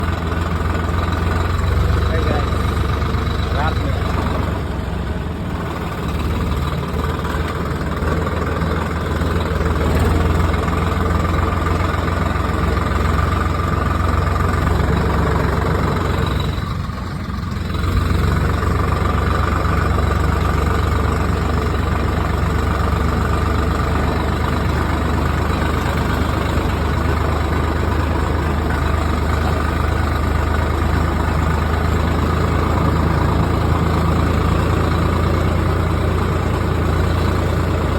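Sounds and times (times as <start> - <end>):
vehicle engine humming: 0.0 - 37.9.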